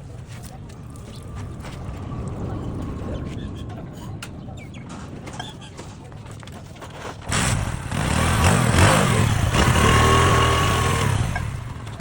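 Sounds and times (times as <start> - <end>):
motorcycle engine running: 7.3 - 12.0.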